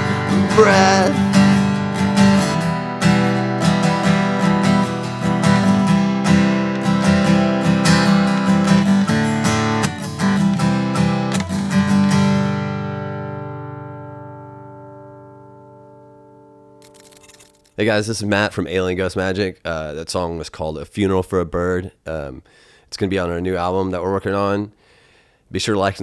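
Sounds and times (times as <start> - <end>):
acoustic guitar strumming chords: 0.0 - 16.9.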